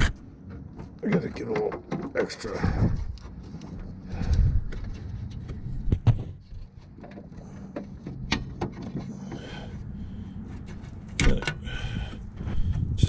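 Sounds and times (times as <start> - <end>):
steady low hum: 2.6 - 13.0.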